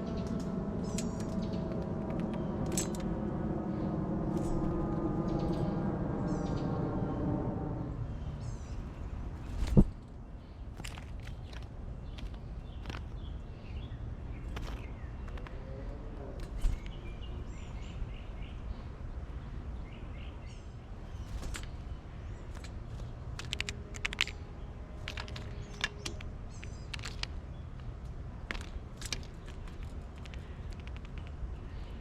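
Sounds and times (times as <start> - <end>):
small birds chirping: 0.0 - 7.2, 7.9 - 32.0
low outdoor rumble: 0.0 - 32.0.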